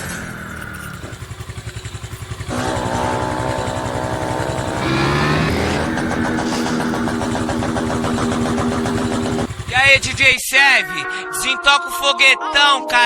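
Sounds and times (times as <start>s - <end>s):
motorcycle engine revving: 0.0s - 10.4s.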